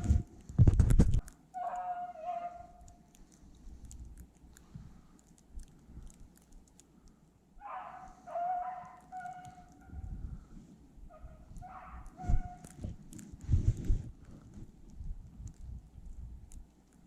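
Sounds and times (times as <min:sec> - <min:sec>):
dog baying: 0:01.6 - 0:03.0, 0:07.6 - 0:10.1, 0:11.1 - 0:12.8.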